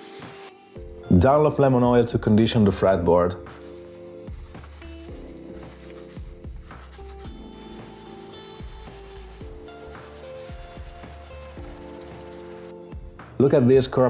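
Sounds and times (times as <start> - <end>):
background music with held notes: 0.0 - 14.0
cloth rubbing guitar fretboard: 3.5 - 12.8.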